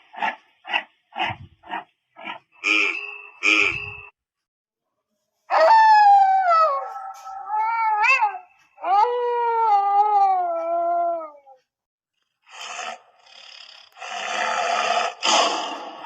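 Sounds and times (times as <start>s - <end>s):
wolf howling: 5.5s - 11.6s.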